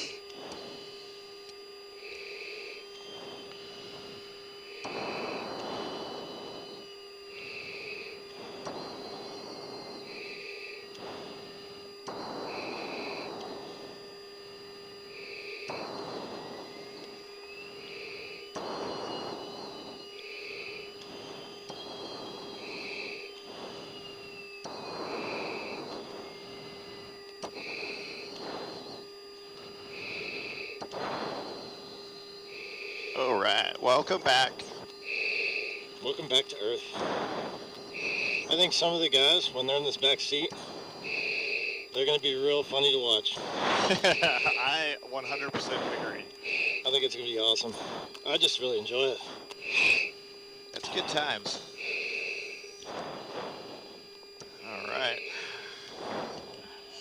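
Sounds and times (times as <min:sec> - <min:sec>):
hissing breaths through a mask: 0:00.0 - 0:33.6, 0:34.4 - 0:57.0
jet engine hum: 0:00.0 - 0:57.0
rush of noise: 0:02.0 - 0:39.9, 0:50.8 - 0:57.0.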